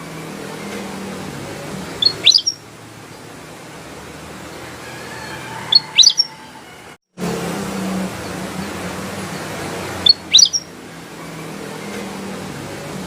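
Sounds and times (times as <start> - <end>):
bird whistling rising notes: 2.0 - 2.6, 4.9 - 7.0, 10.0 - 10.7.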